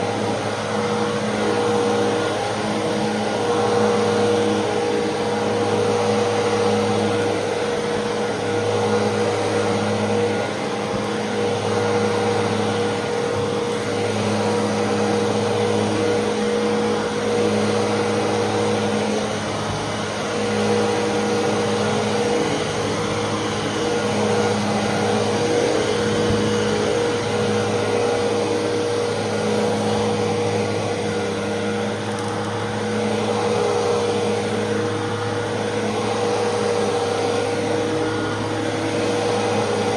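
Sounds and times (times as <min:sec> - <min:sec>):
upright vacuum cleaner running: 0:00.0 - 0:39.9.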